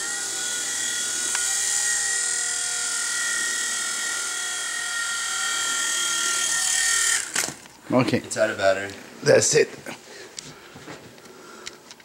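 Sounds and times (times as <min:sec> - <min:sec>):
small helicopter rotors whining: 0:00.0 - 0:07.8.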